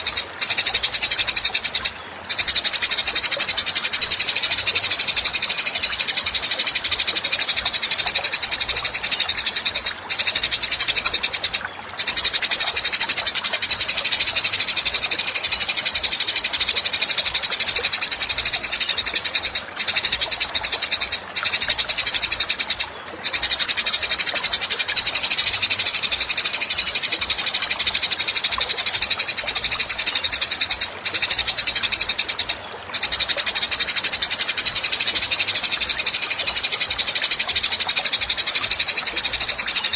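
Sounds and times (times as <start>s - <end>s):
songbird chirring trill: 0.0s - 39.9s.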